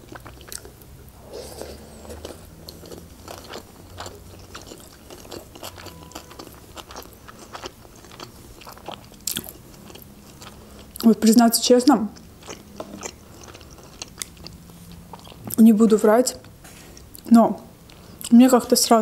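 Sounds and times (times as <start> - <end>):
wet chewing and mouth smacks: 0.1 - 0.8, 1.6 - 11.1, 12.2 - 15.6.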